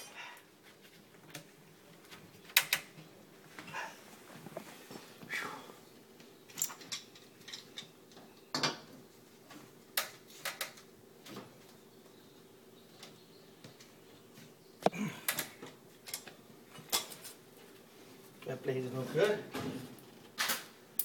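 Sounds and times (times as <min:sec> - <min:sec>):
metal tools clinking and knocking: 0:06.5 - 0:07.9.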